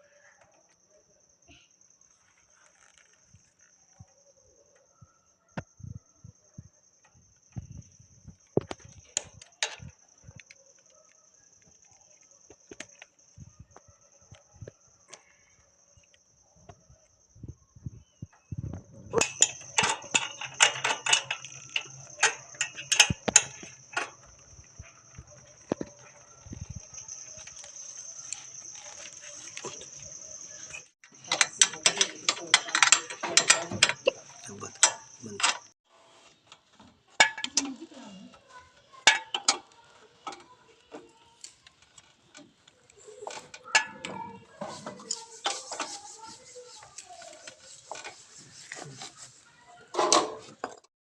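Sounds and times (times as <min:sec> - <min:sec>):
metal chain clicking: 0:19.1 - 0:35.7.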